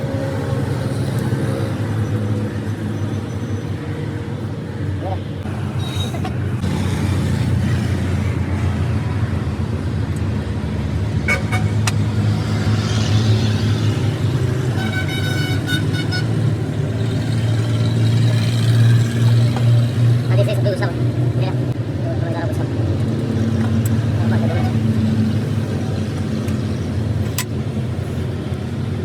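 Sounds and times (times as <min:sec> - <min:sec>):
vehicle engine humming: 0:00.0 - 0:29.0
horn sounding: 0:14.7 - 0:16.4.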